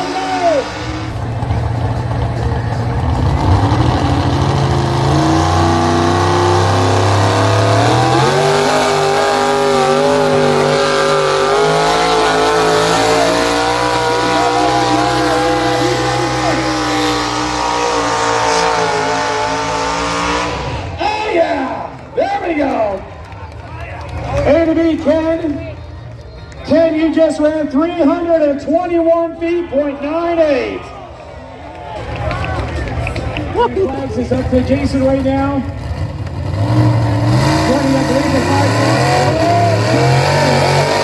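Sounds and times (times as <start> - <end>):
tractor engine under load: 0.7 - 18.4.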